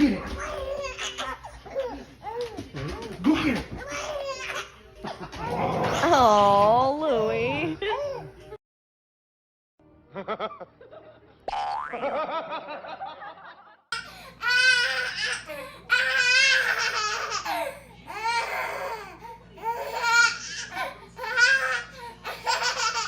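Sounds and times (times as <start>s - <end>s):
baby laughing: 0.0s - 6.0s, 14.4s - 18.9s, 19.6s - 23.0s.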